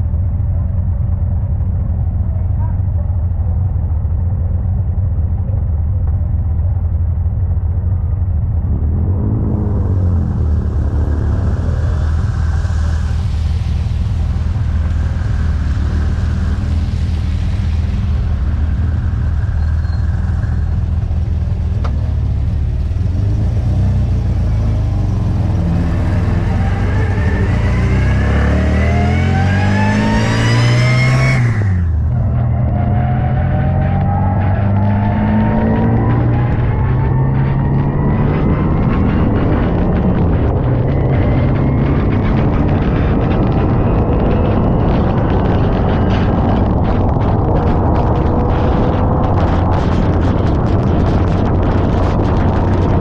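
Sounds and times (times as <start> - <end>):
race car engine under load: 0.0 - 53.0
rushing hiss: 11.5 - 21.0.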